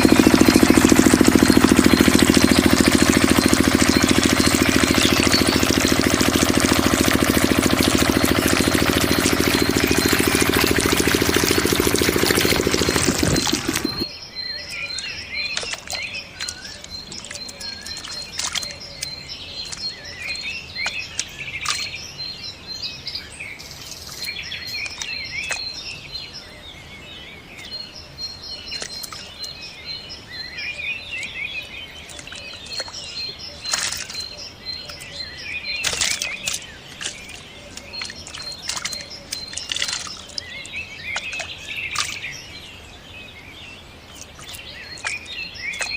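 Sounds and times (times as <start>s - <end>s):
rapid high-pitched pips: 0.0s - 14.0s
loud engine running: 0.0s - 14.1s
birds chirping and calling: 0.0s - 45.9s.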